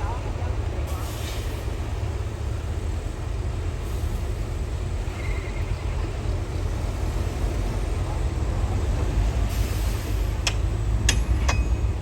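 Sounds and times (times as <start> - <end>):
heavy machinery diesel engine: 0.0 - 12.0.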